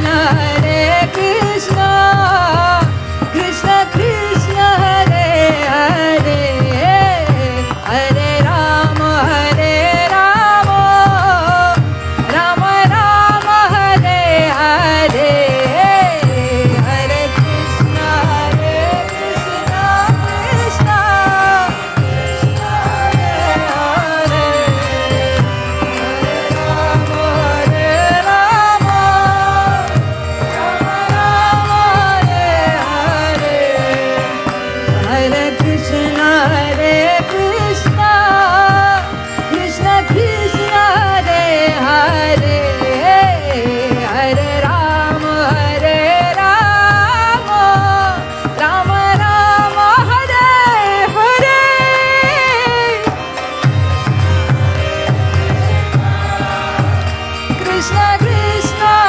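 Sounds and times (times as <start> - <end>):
person singing devotional chant: 0.0 - 59.0
steady drone: 16.2 - 37.8
sustained instrumental tones: 16.4 - 40.9, 53.0 - 59.0.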